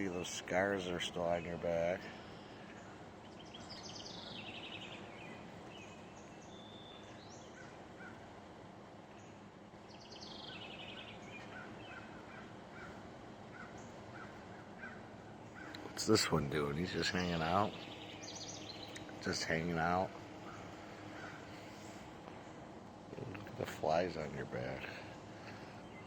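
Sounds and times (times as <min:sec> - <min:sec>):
outdoor background noise: 0:00.0 - 0:26.0
songbirds calling: 0:00.0 - 0:26.0
descending bird trills: 0:09.9 - 0:26.0.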